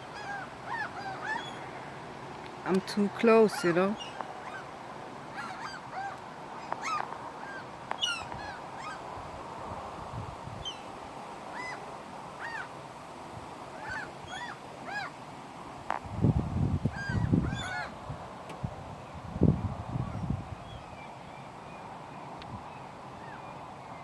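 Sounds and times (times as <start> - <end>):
gulls calling: 0.0 - 1.9, 2.7 - 9.2, 11.5 - 12.7, 13.7 - 15.2, 16.9 - 18.0.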